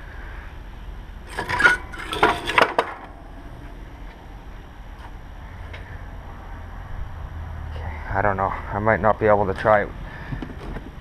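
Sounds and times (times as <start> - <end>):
metal pieces clinking: 1.3 - 3.2.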